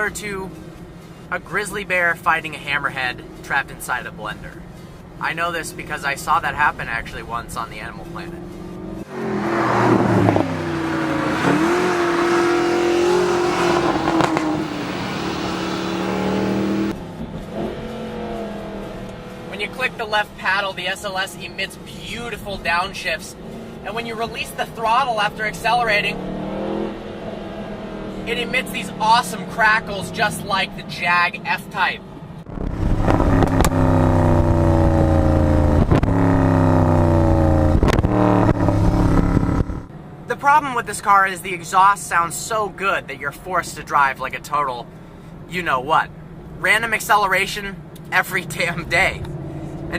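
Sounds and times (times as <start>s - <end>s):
car engine revving: 7.6s - 39.9s
sharp exhaust crack on downshift: 9.0s - 19.9s, 32.4s - 39.9s.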